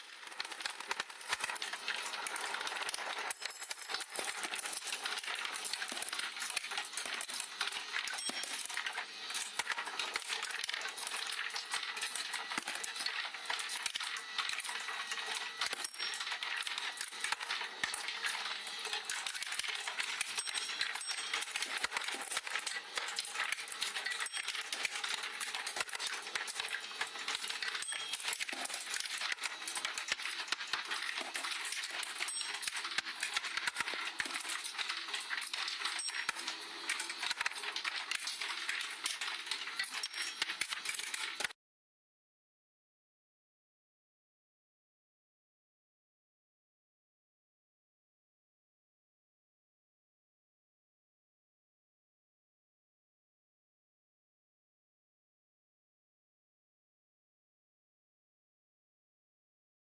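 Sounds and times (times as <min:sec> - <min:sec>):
marbles clattering through a run: 0:00.2 - 0:41.6.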